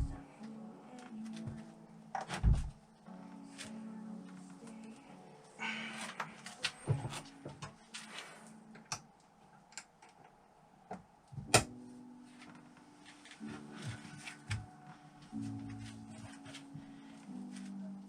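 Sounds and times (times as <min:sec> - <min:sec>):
faint background music: 0:00.0 - 0:18.0.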